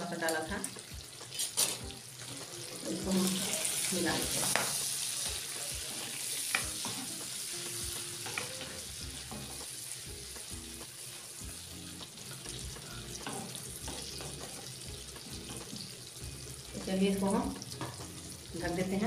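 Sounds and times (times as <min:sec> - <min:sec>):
meat sizzling in hot oil: 0:00.0 - 0:19.0
spatula scraping and knocking pan: 0:13.2 - 0:14.8.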